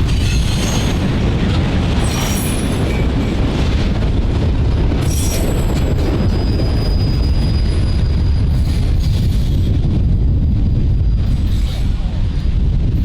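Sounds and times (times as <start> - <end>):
train wheels rumbling on rails: 0.0 - 13.0
high wheel squeals: 5.0 - 9.5.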